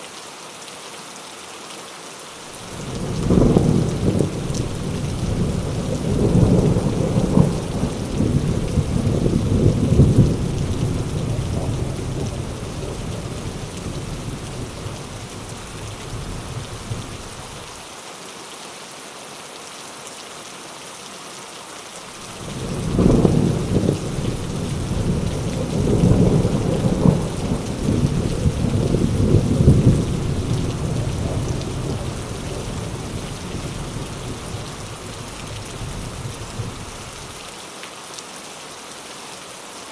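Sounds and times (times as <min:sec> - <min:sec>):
heavy rain: 0:00.0 - 0:39.9
rolling thunder: 0:02.6 - 0:17.6, 0:22.3 - 0:37.4.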